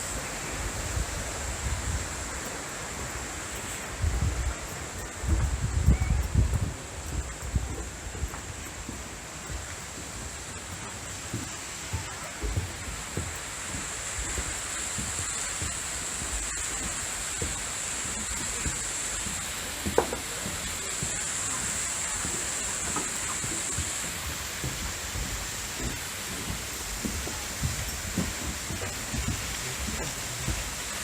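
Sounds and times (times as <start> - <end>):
waterfall rushing hiss: 0.0 - 31.0.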